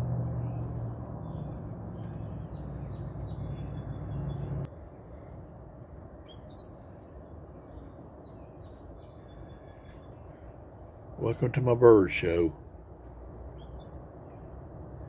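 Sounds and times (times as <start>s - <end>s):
loud low hum: 0.0s - 6.1s
songbirds chirping: 0.0s - 15.0s
sharp sweeping bird call: 6.3s - 7.0s, 13.6s - 14.2s.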